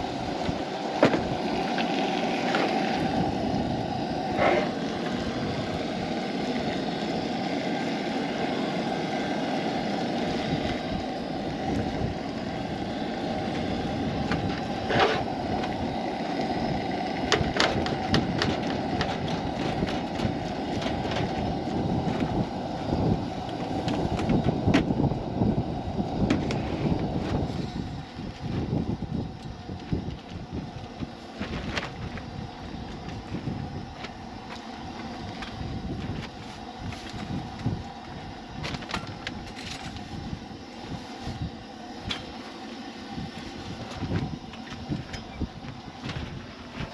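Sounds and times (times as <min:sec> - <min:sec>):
wind buffeting microphone: 0:10.3 - 0:34.5, 0:35.2 - 0:42.2, 0:43.1 - 0:46.9.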